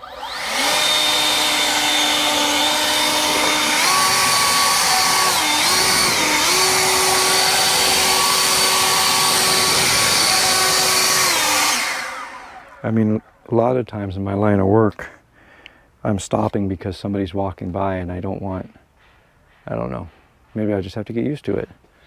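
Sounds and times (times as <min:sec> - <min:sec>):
leaf blower whining: 0:00.0 - 0:13.2.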